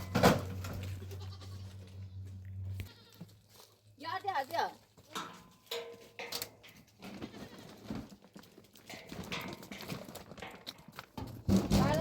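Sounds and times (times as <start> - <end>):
goats bleating: 0.8 - 3.5, 7.2 - 7.8.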